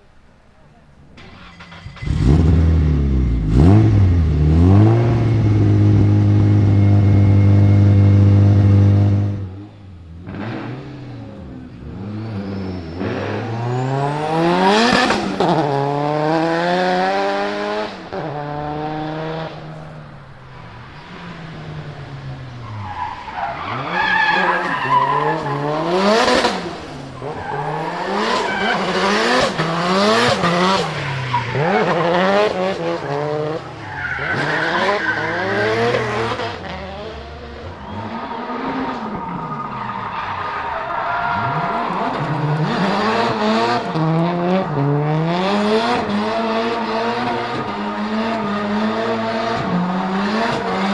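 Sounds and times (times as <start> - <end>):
car engine revving hard: 1.3 - 50.9
tyres squealing: 11.8 - 15.8, 18.1 - 35.9.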